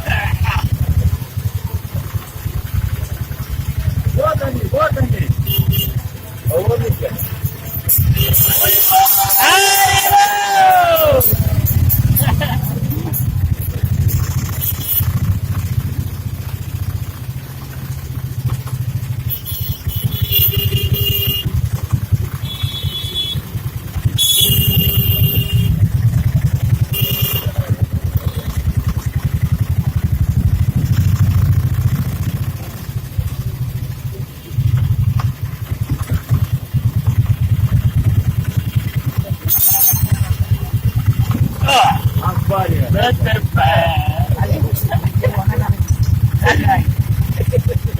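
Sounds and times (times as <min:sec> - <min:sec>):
road noise and engines: 0:00.0 - 0:47.9
horn honks: 0:05.3 - 0:15.3, 0:19.1 - 0:27.8, 0:39.5 - 0:45.2.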